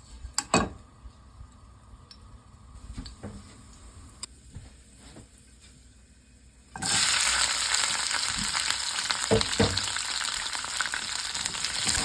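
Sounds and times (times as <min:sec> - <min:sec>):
food sizzling in hot oil: 0:06.6 - 0:12.0.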